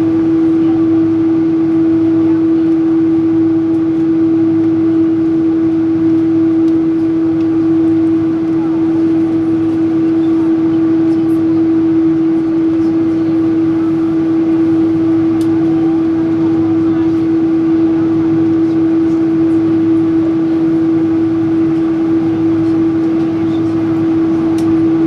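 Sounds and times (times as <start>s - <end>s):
mid-pitched whine: 0.0s - 25.0s.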